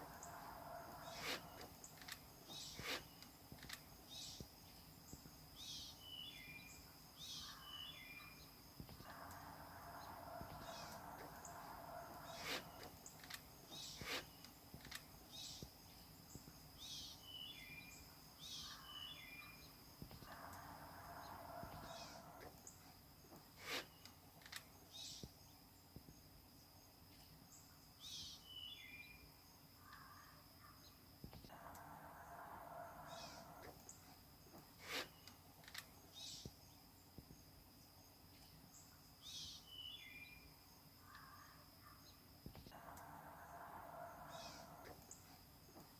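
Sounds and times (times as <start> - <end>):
small bird chirping: 0.0 - 9.2
faint bird chirps: 0.0 - 25.8, 27.1 - 45.9
sharp rustle: 1.0 - 3.8, 12.3 - 14.4, 23.6 - 24.0, 34.8 - 35.2.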